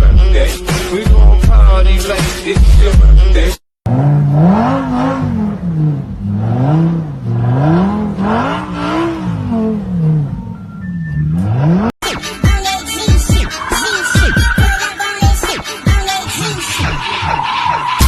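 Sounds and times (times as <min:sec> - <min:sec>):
car engine revving: 0:03.8 - 0:18.0.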